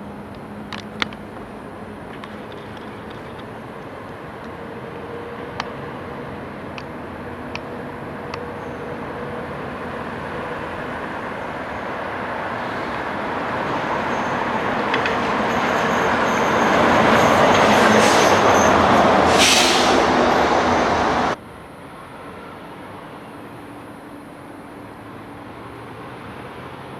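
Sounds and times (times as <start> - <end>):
short hiss: 19.3 - 20.1.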